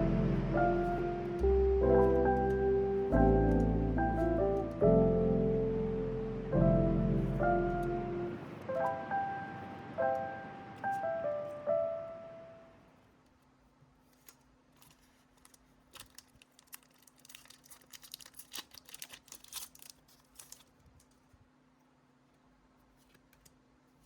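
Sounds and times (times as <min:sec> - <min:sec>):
background piano music: 0:00.0 - 0:13.0
wrapper crinkling and tearing: 0:14.1 - 0:21.3.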